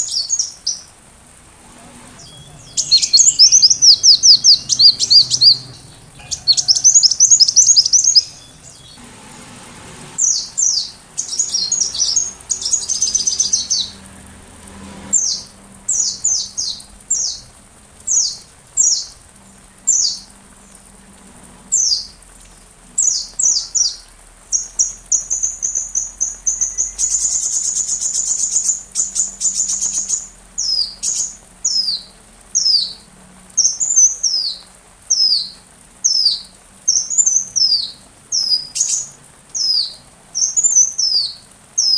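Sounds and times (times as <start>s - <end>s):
rapid high bird trills: 0.0s - 9.0s, 10.1s - 14.3s
sunbird chirping: 0.0s - 41.9s.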